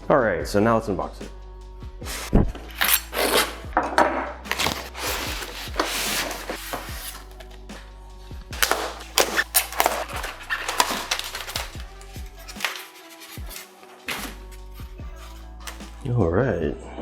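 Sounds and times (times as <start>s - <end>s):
background music: 0.0s - 17.0s
cardboard and tape tearing: 2.1s - 3.7s, 4.4s - 7.5s, 8.6s - 16.0s.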